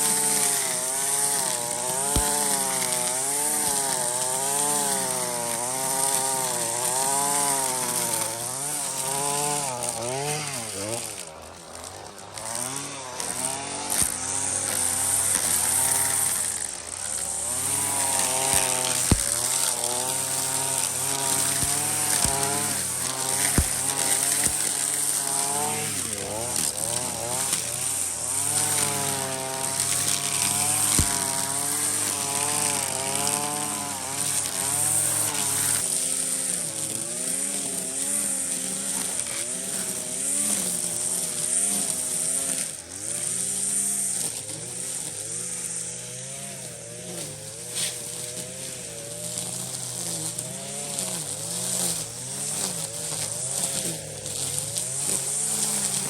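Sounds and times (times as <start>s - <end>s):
small petrol engine revving: 0.0s - 56.0s.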